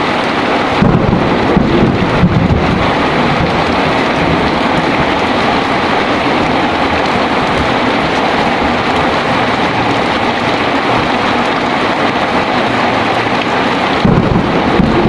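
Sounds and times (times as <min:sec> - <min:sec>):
heavy rain pouring: 0:00.0 - 0:15.0
thunder rumble: 0:00.4 - 0:15.0.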